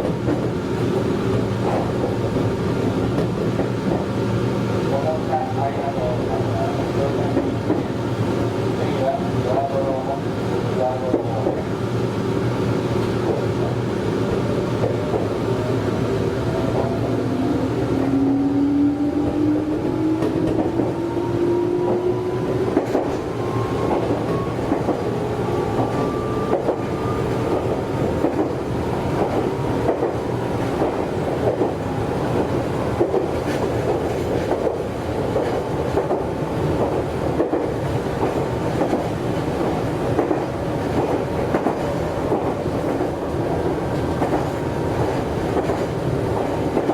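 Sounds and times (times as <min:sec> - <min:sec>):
train wheels clacking over rail joints: 0:32.4 - 0:46.9.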